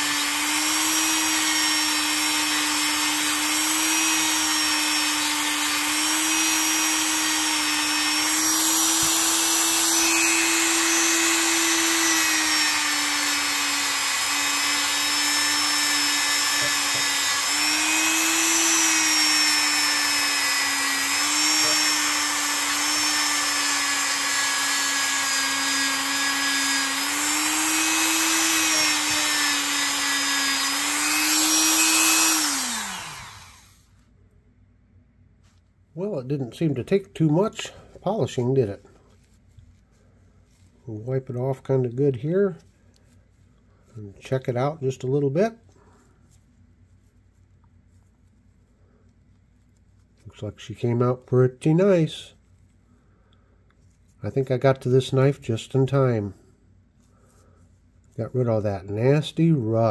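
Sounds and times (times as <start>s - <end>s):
rotary tool buffing: 0.0s - 33.9s.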